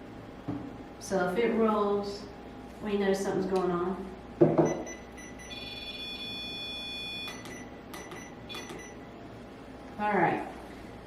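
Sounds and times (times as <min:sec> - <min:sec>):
electronic alarm beeping: 0:04.6 - 0:09.0.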